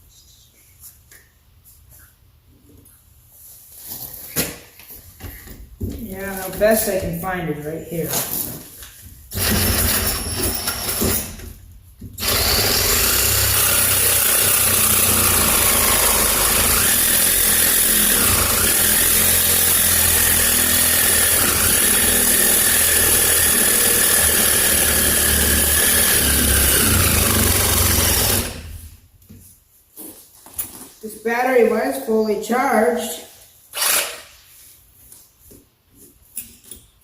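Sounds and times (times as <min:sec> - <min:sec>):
reciprocating saw cutting metal: 0:12.2 - 0:28.9.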